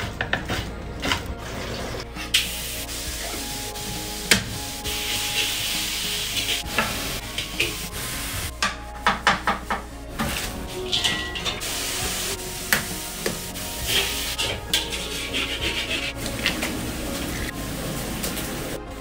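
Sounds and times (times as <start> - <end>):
beef sizzling in a wok: 2.2 - 8.5, 10.3 - 18.8.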